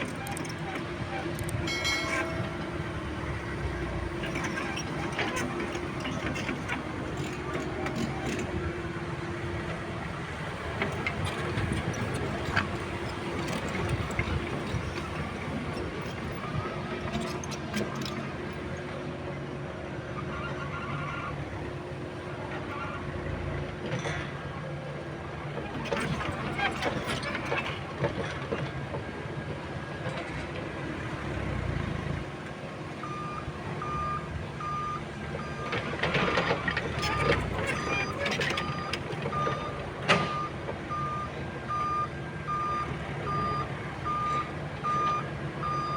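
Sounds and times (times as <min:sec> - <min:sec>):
excavator diesel engine running: 0:00.0 - 0:45.9
metal clanks: 0:01.5 - 0:06.7
light metal clinks: 0:01.6 - 0:04.8
backup alarm beeping: 0:33.0 - 0:35.7.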